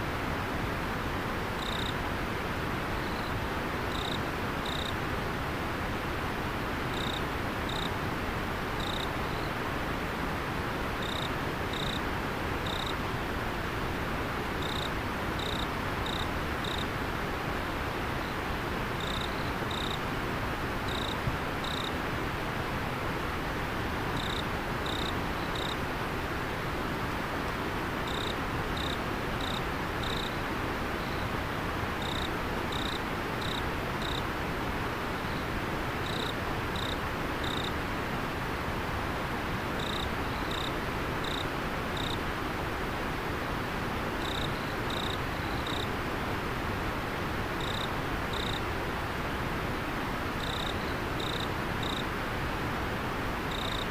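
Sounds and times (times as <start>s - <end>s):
insect chirping: 1.6s - 2.0s, 3.0s - 3.3s, 3.9s - 5.0s, 6.9s - 7.9s, 8.8s - 9.5s, 11.0s - 12.0s, 12.6s - 13.0s, 14.6s - 16.9s, 19.0s - 20.0s, 20.9s - 21.9s, 24.2s - 25.8s, 28.1s - 30.4s, 31.0s - 31.2s, 32.0s - 34.2s, 36.0s - 37.7s, 39.8s - 41.4s, 42.0s - 42.2s, 44.2s - 45.9s, 47.6s - 48.6s, 50.4s - 52.0s, 53.5s - 53.9s.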